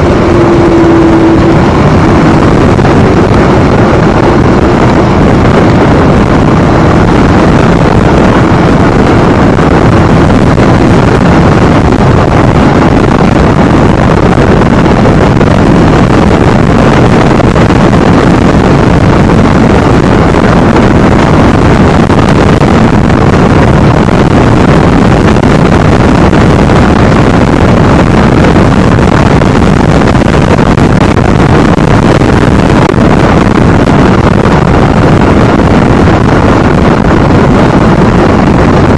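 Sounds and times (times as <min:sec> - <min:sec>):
motorcycle engine running: 0:00.0 - 0:38.9
wind rush on microphone: 0:00.0 - 0:38.9.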